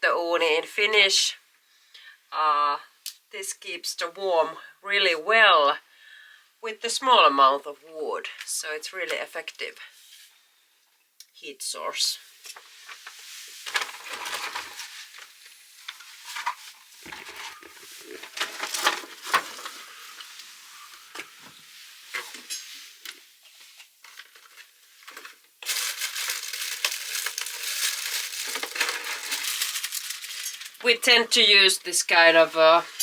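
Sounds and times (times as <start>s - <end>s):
continuous rustle: 12.4s - 31.0s
crinkling and rustling kindling: 12.4s - 33.0s.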